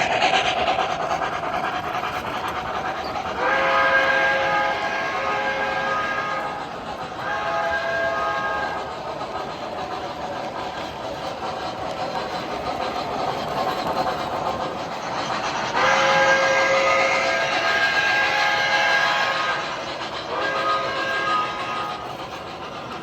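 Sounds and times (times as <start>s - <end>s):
model train rolling rumble: 0.0s - 23.0s
multi-tone train signal: 3.3s - 9.0s, 15.7s - 22.4s.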